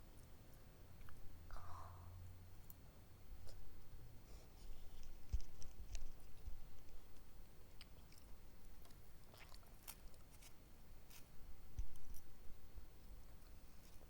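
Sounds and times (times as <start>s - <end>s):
person chewing: 7.6s - 11.3s.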